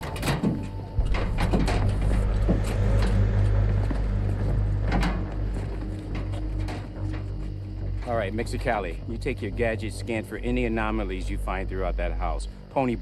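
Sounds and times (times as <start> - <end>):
sharp clunks and knocks: 0.0 - 8.0
deep vehicle rumble: 0.7 - 9.8.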